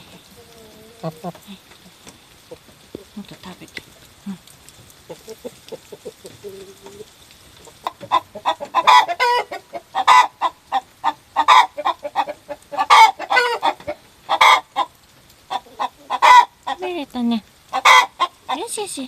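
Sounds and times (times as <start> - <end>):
chicken cackling: 0.0 - 1.8, 5.0 - 17.0, 17.7 - 18.6.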